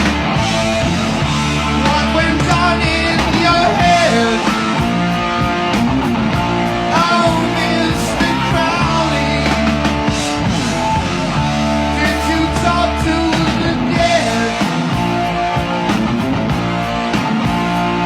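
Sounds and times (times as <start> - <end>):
hard rock song with vocals: 0.0 - 18.0.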